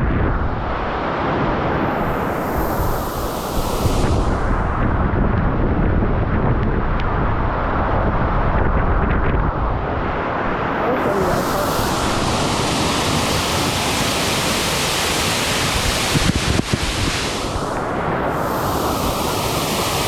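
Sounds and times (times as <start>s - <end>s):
wind rumbling on microphone: 0.0s - 20.0s
waterfall rushing: 10.3s - 20.0s.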